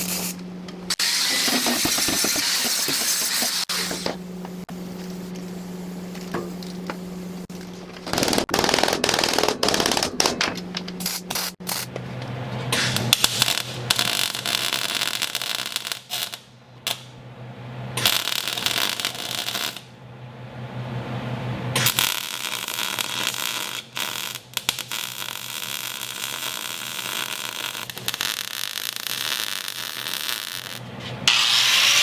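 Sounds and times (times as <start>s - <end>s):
low electrical hum: 0.0s - 1.0s, 3.8s - 31.5s
welding arc crackling: 8.0s - 10.3s, 12.8s - 17.1s, 18.0s - 19.9s, 21.8s - 32.0s.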